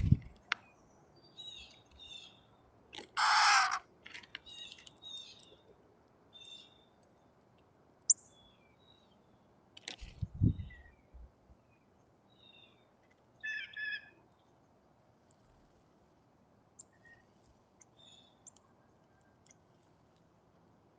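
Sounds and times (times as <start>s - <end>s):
baby bird screeching: 3.2s - 3.8s
faint bird chirping: 10.4s - 14.7s, 16.7s - 19.8s
bird chirps: 13.4s - 14.2s, 16.8s - 19.4s.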